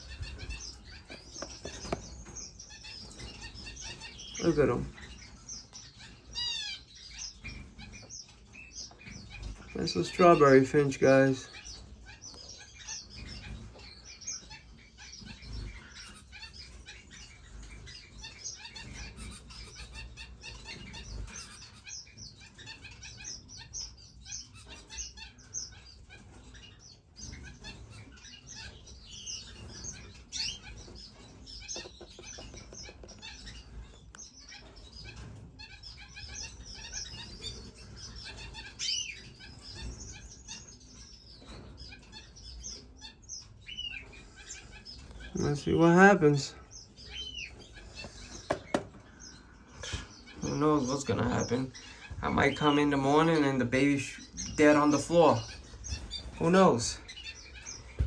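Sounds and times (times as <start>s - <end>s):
finches chirping: 0.0s - 58.0s.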